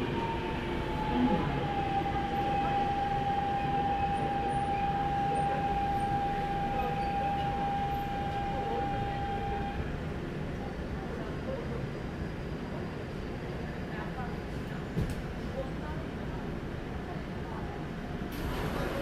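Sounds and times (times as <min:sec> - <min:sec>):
train motor whine: 0:00.0 - 0:09.9.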